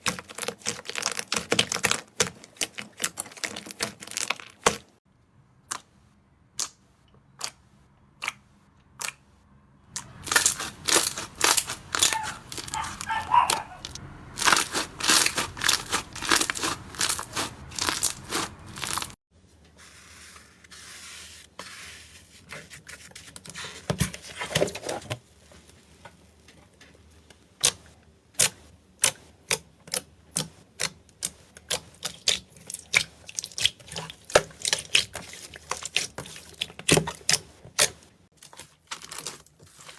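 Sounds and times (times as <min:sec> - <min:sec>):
brittle material crushed by hand: 0:00.0 - 0:04.9, 0:09.9 - 0:19.2.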